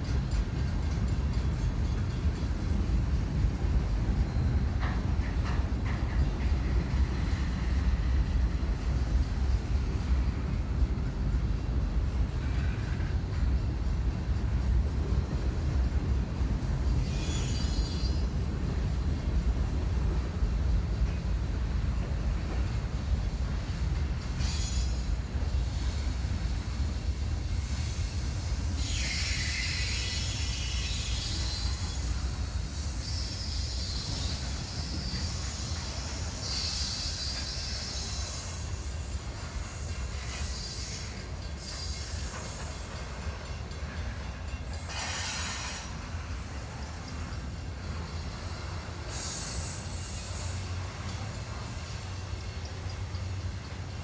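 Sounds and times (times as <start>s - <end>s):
freight train rumbling past: 0.0s - 54.0s
high-pitched wheel squeal: 17.0s - 18.3s.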